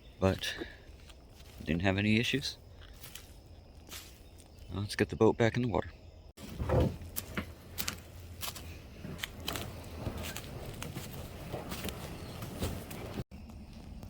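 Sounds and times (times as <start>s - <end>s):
knocks and scrapes: 6.4s - 13.2s
footsteps: 6.4s - 14.0s.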